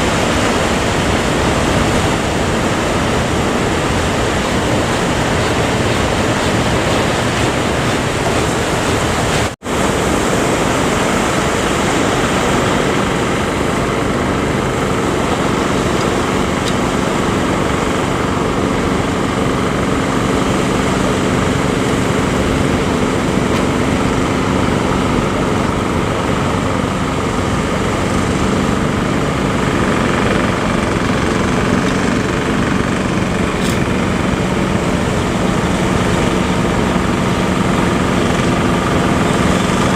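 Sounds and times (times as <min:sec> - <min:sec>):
boat engine droning: 0:00.0 - 0:39.9
surf rushing: 0:00.0 - 0:39.9
wind: 0:00.0 - 0:39.9.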